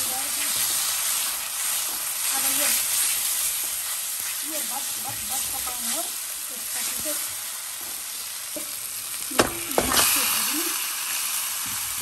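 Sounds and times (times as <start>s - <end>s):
paste sizzling in oil: 0.0s - 12.0s
meat knocking into pan: 9.3s - 10.2s.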